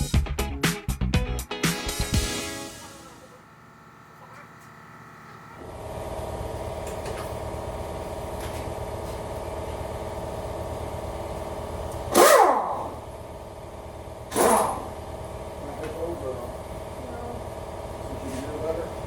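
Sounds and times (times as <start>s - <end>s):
steady mechanical hum: 2.7s - 19.0s
power tool bursts: 12.0s - 13.1s, 14.2s - 15.0s.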